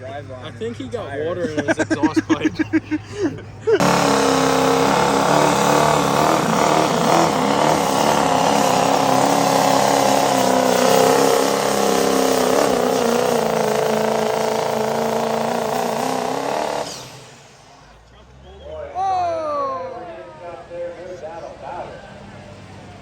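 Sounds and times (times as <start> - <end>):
diesel truck engine revving high: 3.7 - 18.6.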